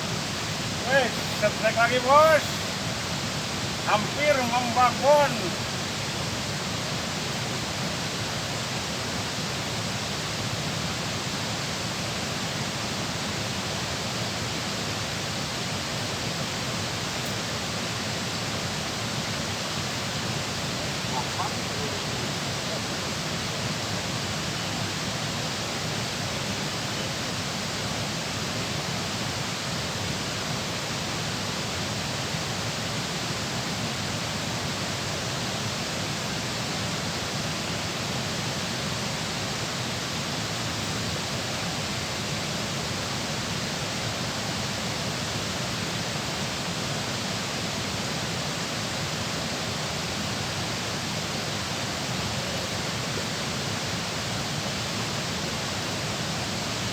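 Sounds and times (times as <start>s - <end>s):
water rushing at a dam: 0.0s - 56.9s.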